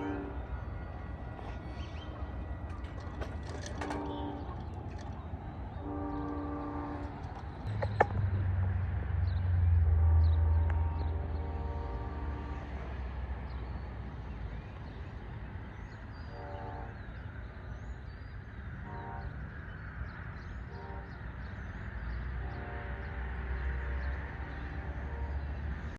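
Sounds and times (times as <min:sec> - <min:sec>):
locomotive horn blasts: 0:00.0 - 0:05.1, 0:05.7 - 0:07.4, 0:09.8 - 0:13.0, 0:16.3 - 0:17.0, 0:18.8 - 0:19.4, 0:20.7 - 0:21.2, 0:22.4 - 0:25.8
train rumble: 0:00.0 - 0:25.9.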